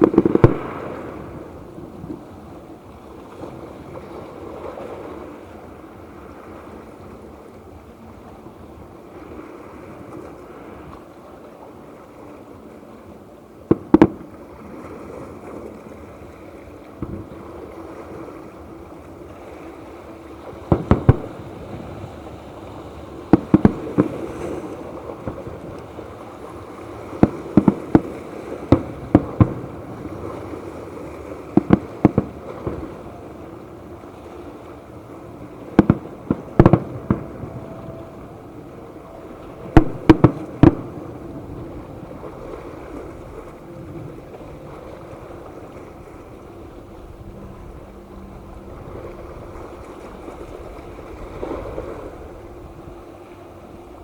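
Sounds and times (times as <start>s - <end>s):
firework shells bursting: 0.0s - 0.7s
steady background hiss: 0.0s - 54.0s.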